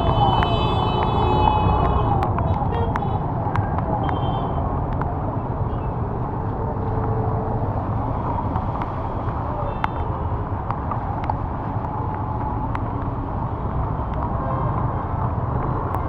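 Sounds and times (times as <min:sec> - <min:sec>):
road and wind rumble: 0:00.0 - 0:16.0.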